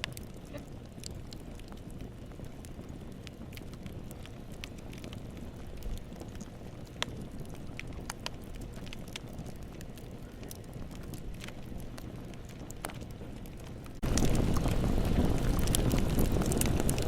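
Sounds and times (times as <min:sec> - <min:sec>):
burning logs crackling and popping: 0:00.0 - 0:17.0
campfire burning: 0:00.0 - 0:17.0.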